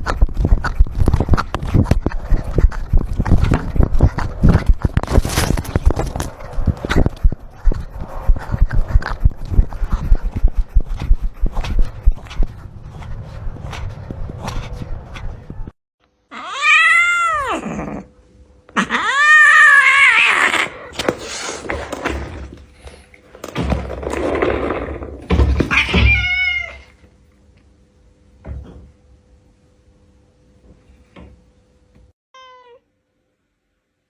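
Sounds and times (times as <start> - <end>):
low thumps: 0.0 - 15.7
cat meowing loudly: 16.3 - 17.8, 18.8 - 20.7, 25.7 - 26.9, 32.4 - 32.9.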